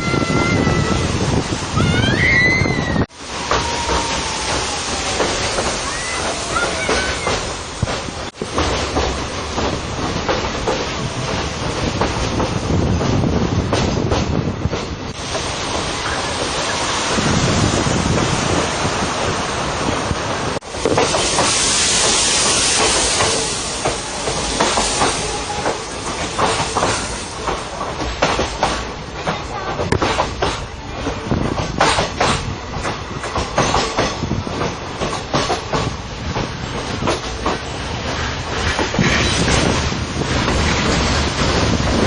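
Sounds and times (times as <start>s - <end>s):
hissing rush: 0.0s - 29.5s
train wheels clattering: 3.3s - 42.0s.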